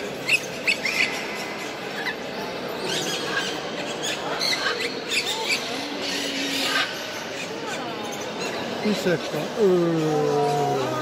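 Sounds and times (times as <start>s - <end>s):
caged birds chirping: 0.0s - 11.0s
low background murmur: 0.0s - 11.0s.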